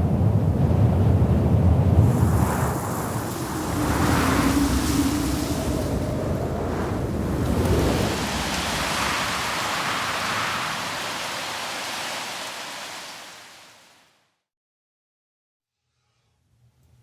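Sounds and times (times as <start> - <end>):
wind buffeting microphone: 0.0 - 13.0
blizzard wind blowing: 0.0 - 14.0.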